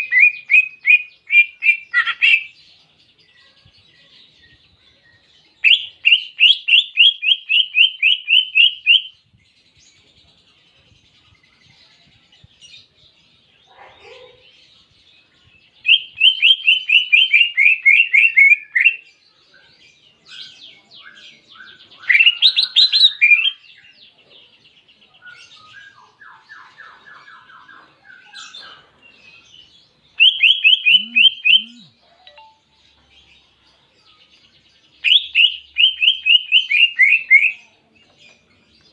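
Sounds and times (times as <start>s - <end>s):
soft bird twittering: 25.3s - 33.2s
bird singing trills: 25.4s - 37.7s.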